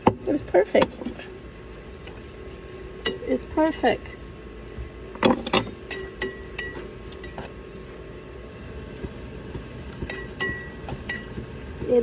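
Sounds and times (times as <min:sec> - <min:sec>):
steady hum: 0:00.0 - 0:12.0
sharp ringing taps: 0:10.0 - 0:11.5.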